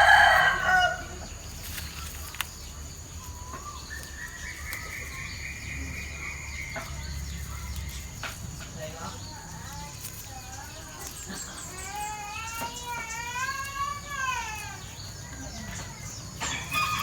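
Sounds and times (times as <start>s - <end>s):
rooster crowing: 0.0s - 1.3s, 16.4s - 17.0s.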